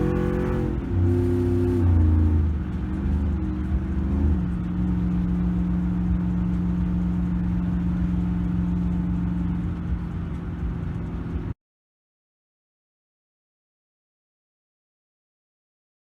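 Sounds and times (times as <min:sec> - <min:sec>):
truck engine running: 0:00.0 - 0:11.5.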